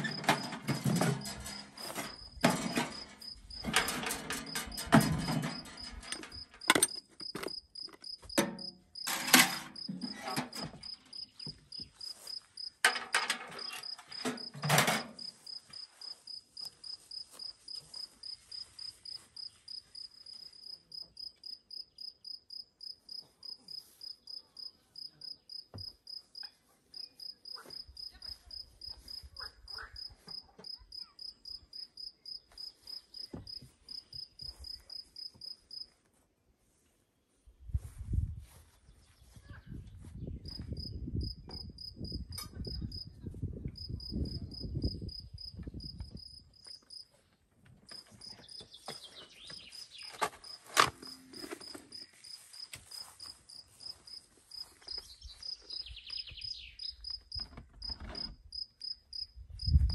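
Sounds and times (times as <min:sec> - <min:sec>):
knocks and rustles: 0:00.0 - 0:15.8.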